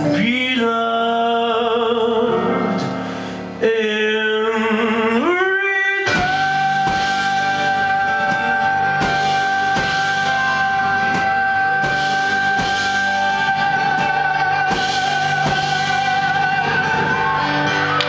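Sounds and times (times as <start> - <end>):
guitar: 0.0 - 18.0
steady drum beat: 6.1 - 18.0.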